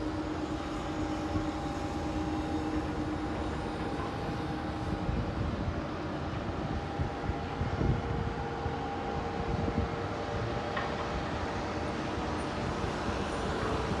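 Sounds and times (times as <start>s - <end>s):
wind buffeting microphone: 4.9s - 8.4s.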